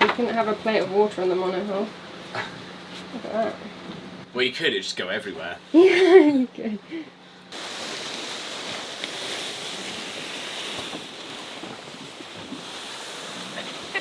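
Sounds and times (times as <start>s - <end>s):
sea water washing around a boat: 7.5s - 14.0s.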